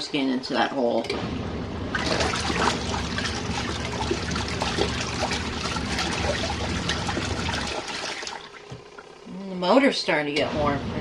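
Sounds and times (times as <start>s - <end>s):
washing machine motor hum: 0.0s - 11.0s
water sloshing in washing machine: 1.2s - 9.3s.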